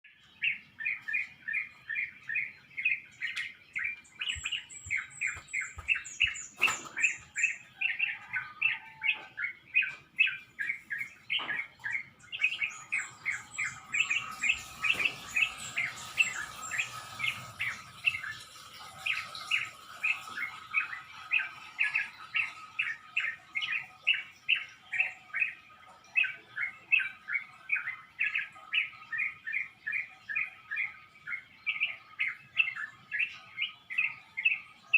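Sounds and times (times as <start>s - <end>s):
birds chirping quickly: 0.0s - 34.9s
high thin bird trill: 3.2s - 9.0s.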